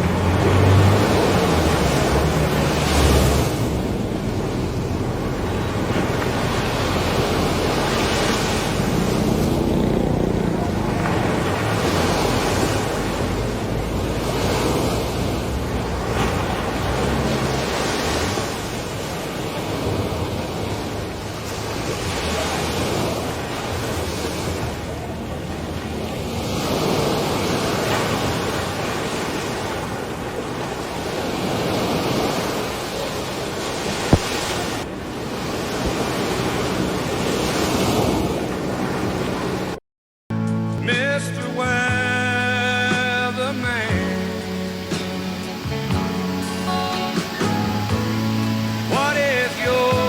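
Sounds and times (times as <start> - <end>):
wind buffeting microphone: 0.0 - 39.8
floodwater rushing: 0.0 - 50.0.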